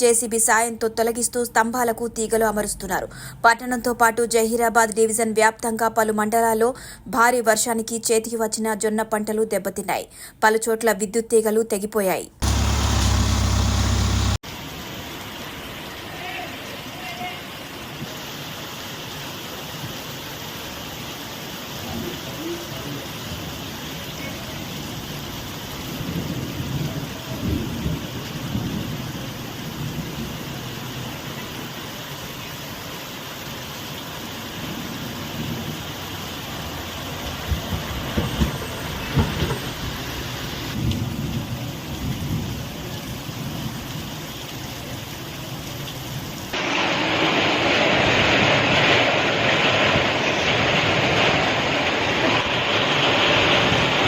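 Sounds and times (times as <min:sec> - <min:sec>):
low rumbles: 0:12.4 - 0:14.4
heavy rain hissing: 0:12.4 - 0:54.0
rain: 0:12.4 - 0:54.0.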